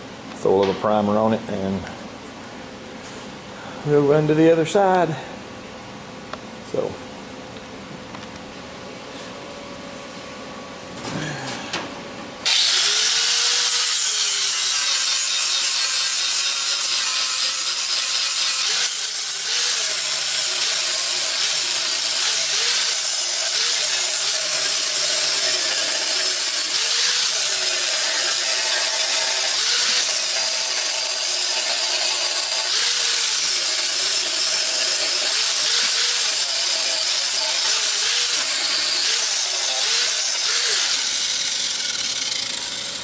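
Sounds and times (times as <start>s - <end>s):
angle grinder grinding metal: 12.4s - 43.0s.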